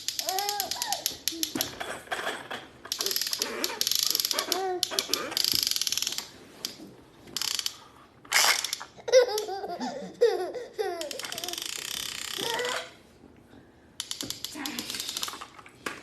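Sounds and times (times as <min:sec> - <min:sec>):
baby laughing: 0:03.0 - 0:05.4, 0:08.9 - 0:11.8.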